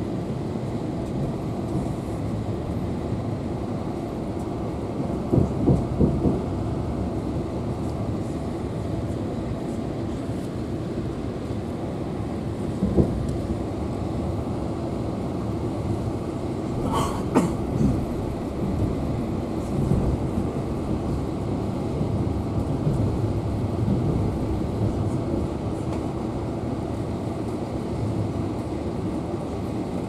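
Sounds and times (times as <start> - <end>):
train carriage rolling over rails: 16.7 - 30.0.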